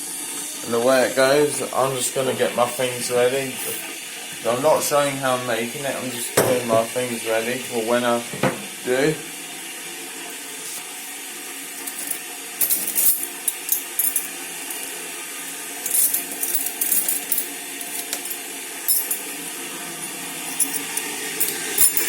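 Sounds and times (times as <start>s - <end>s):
electric kettle hissing: 0.0s - 22.0s
tea things clinking: 15.8s - 19.3s, 20.5s - 22.0s.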